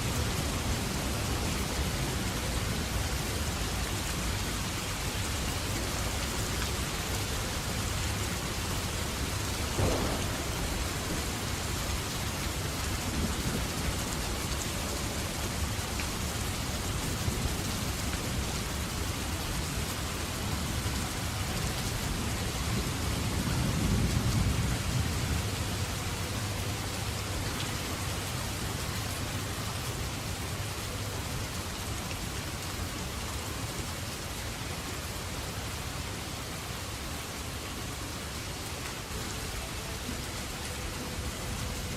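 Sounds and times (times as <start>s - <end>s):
steady rainfall: 0.0s - 41.9s
rolling thunder rumble: 9.5s - 14.4s
thunder crack: 9.7s - 12.1s.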